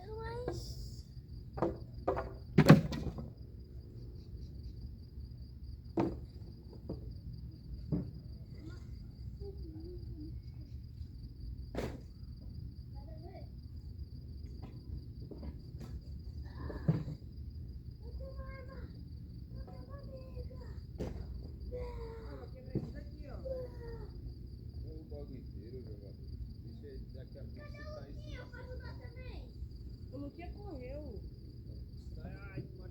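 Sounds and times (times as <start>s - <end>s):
crickets chirring: 0.0s - 32.9s
firewood knocking and thudding: 1.5s - 3.4s, 5.9s - 7.2s, 7.8s - 8.4s, 21.0s - 21.7s, 22.7s - 23.2s.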